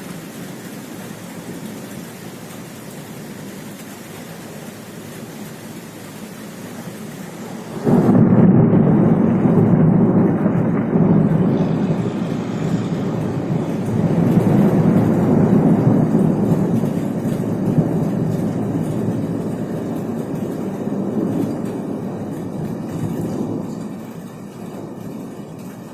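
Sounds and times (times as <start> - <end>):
thunder clap and rolling rumble: 0.0 - 25.9.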